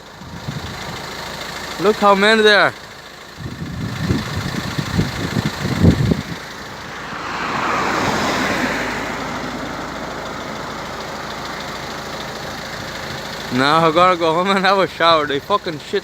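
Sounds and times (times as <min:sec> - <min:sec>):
passing vehicle road noise: 0:03.2 - 0:13.8
low rumbling thumps: 0:03.4 - 0:07.0.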